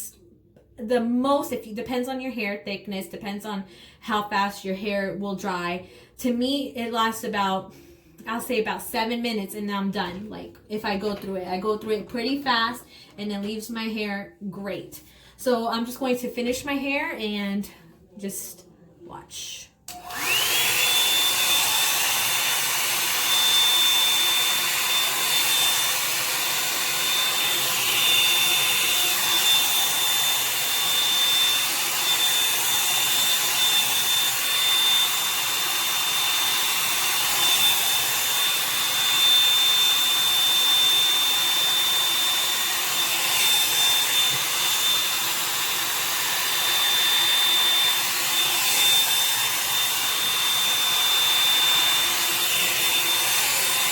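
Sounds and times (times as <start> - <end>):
hair dryer brush running: 19.9 - 53.9.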